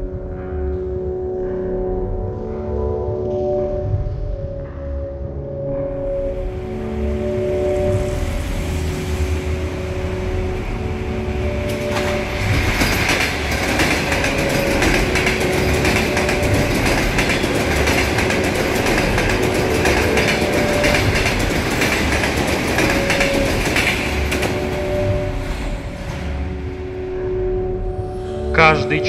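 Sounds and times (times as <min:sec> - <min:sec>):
electric train passing: 0:06.0 - 0:29.0
wheels clacking over rail joints: 0:11.5 - 0:26.2.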